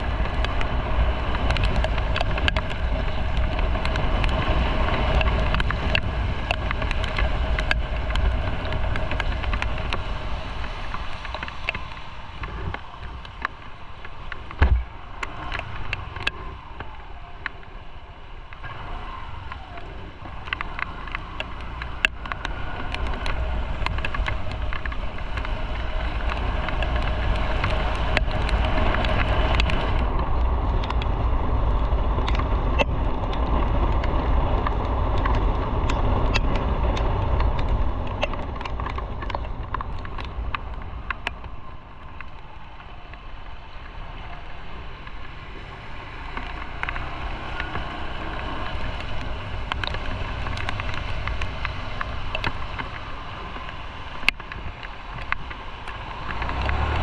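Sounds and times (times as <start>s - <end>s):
motorcycle engine running: 0.0s - 57.0s
wind noise on microphone: 0.0s - 57.0s.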